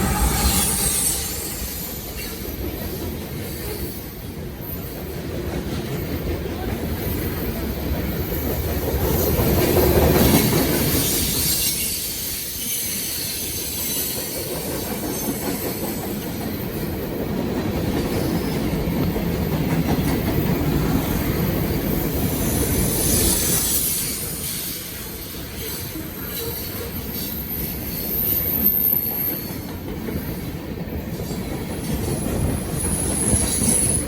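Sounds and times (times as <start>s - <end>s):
high wheel squeal: 0.0s - 2.8s, 32.7s - 34.0s.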